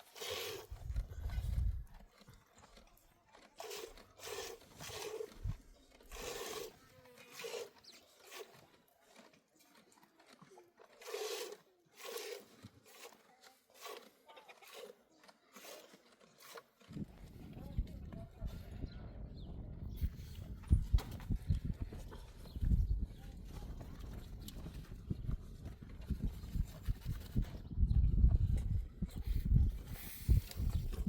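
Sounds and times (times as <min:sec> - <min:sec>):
crunching and scraping strokes: 0:00.0 - 0:17.4, 0:28.5 - 0:31.0.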